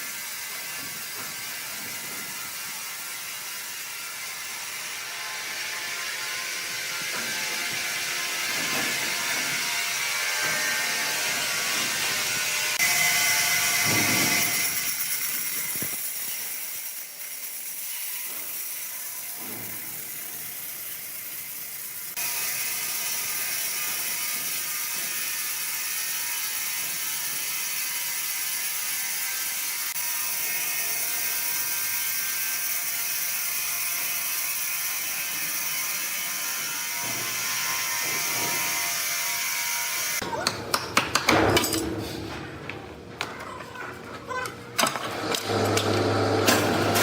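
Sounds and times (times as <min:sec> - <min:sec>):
machinery whirring and rattling: 0:00.3 - 0:17.7, 0:41.2 - 0:47.0.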